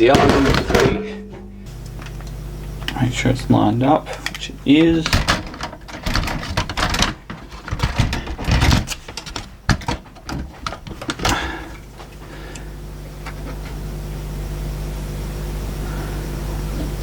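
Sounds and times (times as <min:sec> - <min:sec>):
steady low hum: 0:00.0 - 0:17.0
small parts clicking and knocking: 0:05.0 - 0:11.4.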